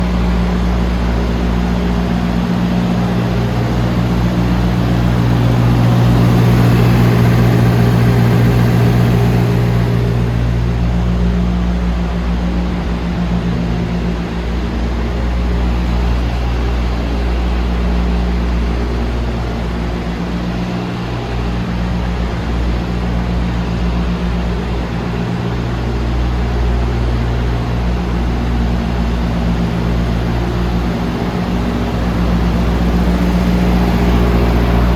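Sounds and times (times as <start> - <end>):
truck diesel engine idling: 0.0 - 12.2, 26.8 - 34.9.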